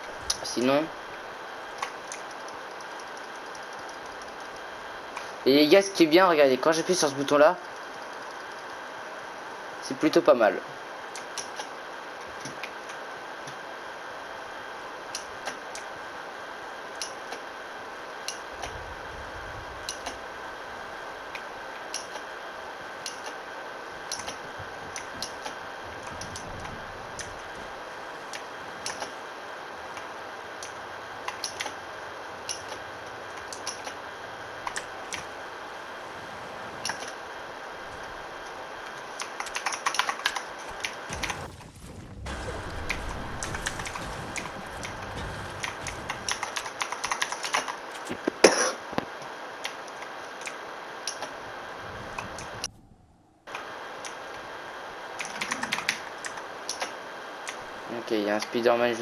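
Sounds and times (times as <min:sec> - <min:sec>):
low hum: 0:00.0 - 0:05.5, 0:13.7 - 0:48.2, 0:50.7 - 0:57.9
keyboard and mouse clicking: 0:39.2 - 0:41.0.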